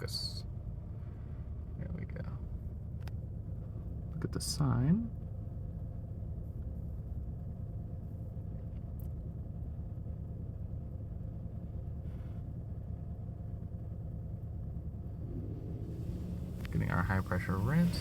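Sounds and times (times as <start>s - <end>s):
car wash mechanical hum: 2.4s - 18.0s.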